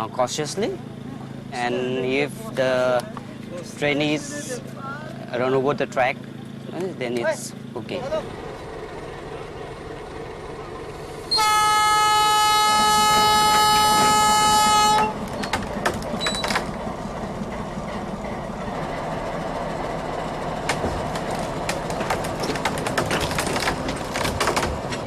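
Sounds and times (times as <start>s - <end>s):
train rumbling on track: 0.0s - 25.0s
clicks and knocks of train: 8.6s - 25.0s
locomotive horn blast: 11.2s - 15.4s.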